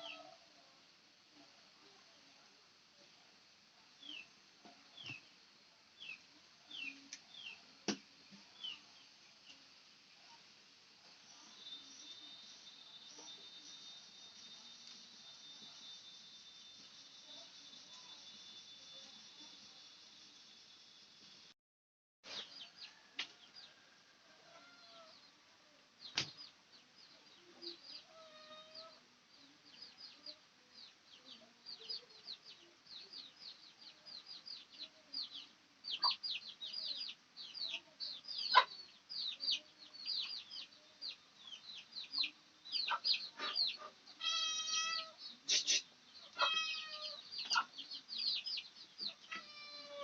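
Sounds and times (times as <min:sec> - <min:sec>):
chickens clucking: 0:38.4 - 0:38.8, 0:42.2 - 0:44.0, 0:47.4 - 0:47.8
drawn-out chicken call: 0:46.4 - 0:47.7.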